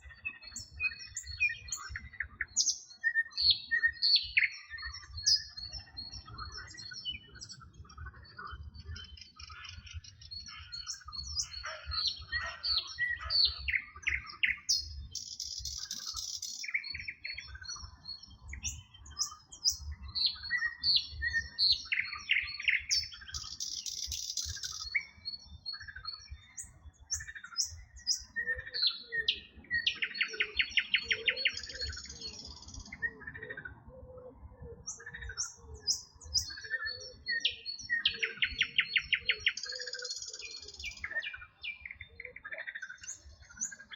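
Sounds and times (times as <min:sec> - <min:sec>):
songbirds singing and chirping: 0:00.0 - 0:43.9
frogs croaking: 0:07.8 - 0:17.6.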